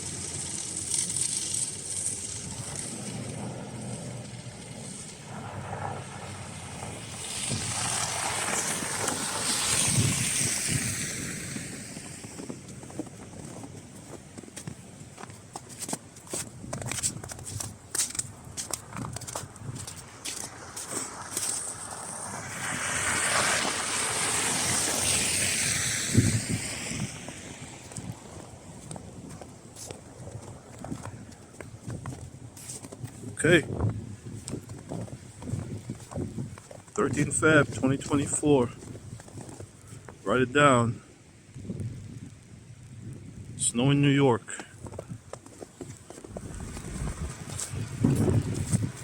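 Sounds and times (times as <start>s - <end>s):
tyres hissing on slush: 0.0s - 3.2s, 7.0s - 12.4s, 20.0s - 28.1s
vehicle tyres hissing on slush: 0.0s - 31.8s, 32.4s - 40.2s, 45.6s - 49.0s
wind on microphone: 1.9s - 15.6s, 16.3s - 40.2s, 41.5s - 43.7s, 44.8s - 49.0s.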